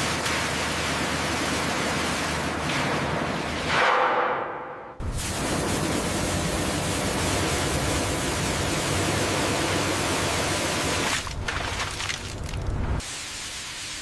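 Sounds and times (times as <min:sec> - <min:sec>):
loud rushing spray: 0:05.0 - 0:11.2.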